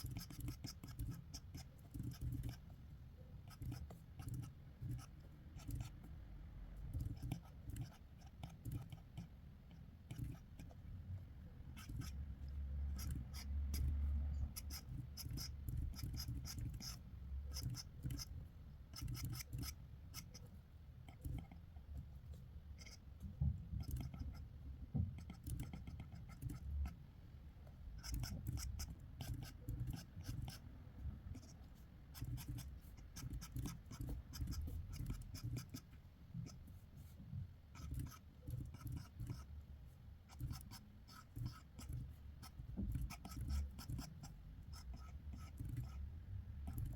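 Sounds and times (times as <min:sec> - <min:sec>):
drawing tool scratching paper: 0:00.0 - 0:02.8, 0:03.4 - 0:06.0, 0:06.9 - 0:10.8, 0:11.6 - 0:21.9, 0:22.8 - 0:23.1, 0:23.8 - 0:24.5, 0:25.2 - 0:27.0, 0:28.0 - 0:30.7, 0:31.3 - 0:37.1, 0:37.7 - 0:39.5, 0:40.3 - 0:46.0, 0:46.6 - 0:46.9.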